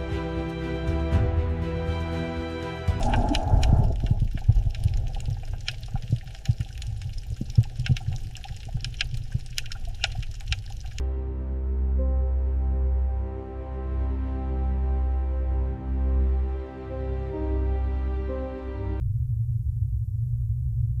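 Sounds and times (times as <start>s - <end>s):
music: 0.0s - 3.8s, 11.0s - 19.0s
low rumble: 2.9s - 11.0s, 19.0s - 21.0s
pops and clicks: 2.9s - 11.0s
water bubbling and gurgling: 2.9s - 11.0s.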